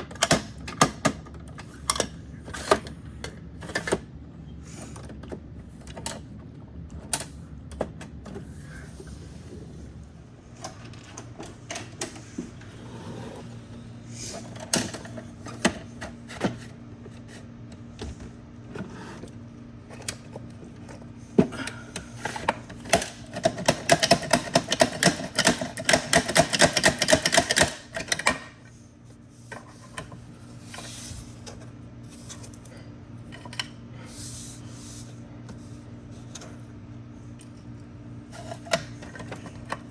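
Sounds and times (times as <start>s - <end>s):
steady low hum: 0.0s - 23.5s, 27.7s - 39.9s
plastic toy clicking and rattling: 22.9s - 28.2s.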